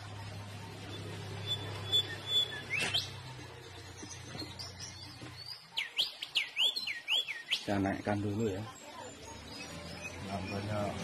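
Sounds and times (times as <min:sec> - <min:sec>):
bird whistling swooping notes: 0:00.9 - 0:03.2.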